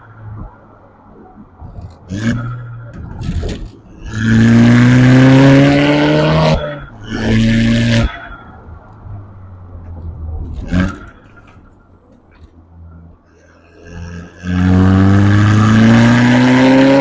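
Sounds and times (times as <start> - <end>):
car engine accelerating hard: 1.8 - 8.2, 13.8 - 17.0.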